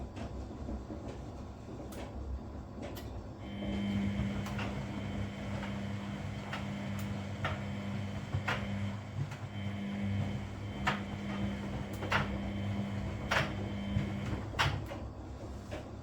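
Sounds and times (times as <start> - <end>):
washing machine motor humming: 3.4 - 16.0.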